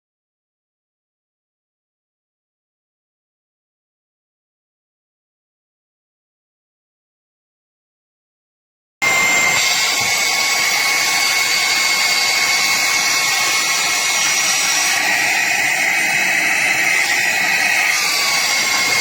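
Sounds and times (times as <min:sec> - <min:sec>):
handheld vacuum cleaner running: 0:09.0 - 0:19.0.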